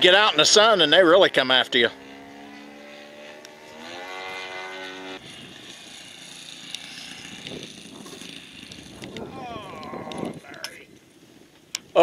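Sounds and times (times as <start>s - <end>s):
model airplane motor whining: 0.0s - 11.2s.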